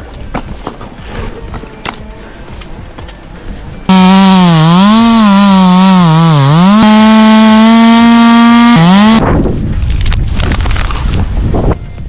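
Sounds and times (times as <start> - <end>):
chainsaw running at high revs: 3.9 - 9.2.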